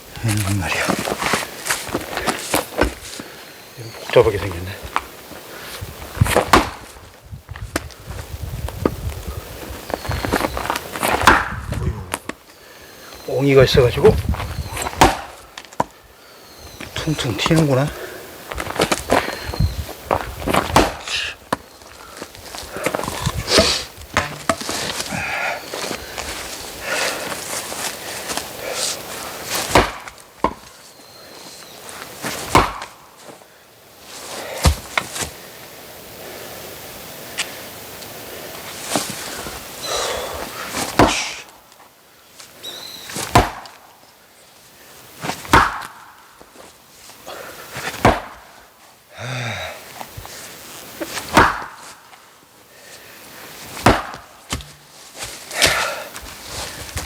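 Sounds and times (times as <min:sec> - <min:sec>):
axe chopping firewood: 0:06.2 - 0:06.9, 0:11.0 - 0:12.2, 0:14.8 - 0:15.9, 0:20.5 - 0:21.6, 0:22.8 - 0:25.1, 0:29.6 - 0:30.8, 0:32.4 - 0:33.0, 0:34.6 - 0:35.0, 0:40.9 - 0:41.4, 0:43.2 - 0:43.8, 0:45.5 - 0:46.0, 0:47.9 - 0:48.5, 0:51.3 - 0:51.8, 0:53.8 - 0:56.0
wood knocking: 0:23.2 - 0:25.0, 0:53.9 - 0:55.0.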